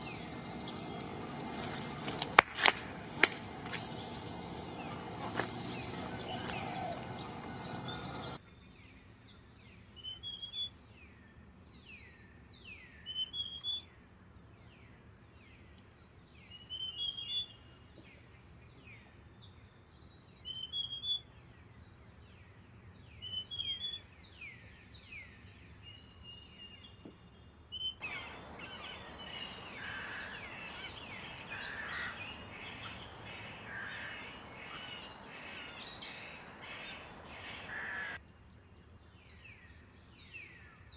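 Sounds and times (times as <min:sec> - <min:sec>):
chorus of several birds: 0:00.0 - 0:08.4, 0:28.0 - 0:38.2
rushing background noise: 0:00.0 - 0:08.4, 0:28.0 - 0:38.2
songbird repeating falling notes: 0:28.0 - 0:38.2.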